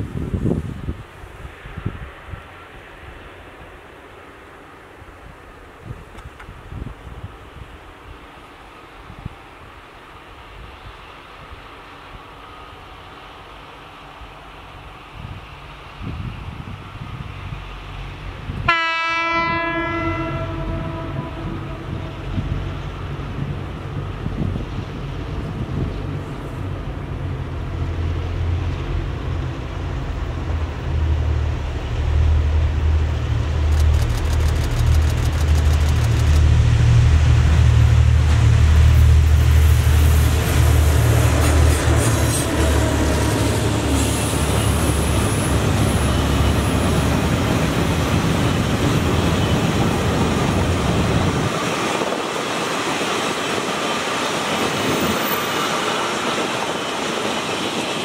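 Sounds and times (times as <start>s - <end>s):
diesel locomotive engines droning: 0.0s - 58.0s
wagon wheels on rails: 33.6s - 36.6s.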